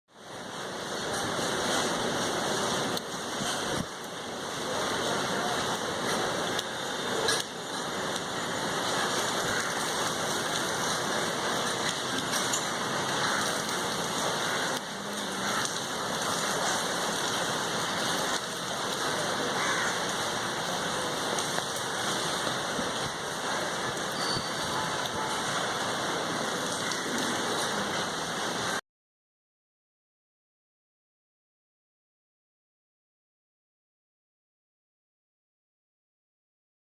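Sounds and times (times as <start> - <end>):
steady rain falling: 0.1 - 28.8.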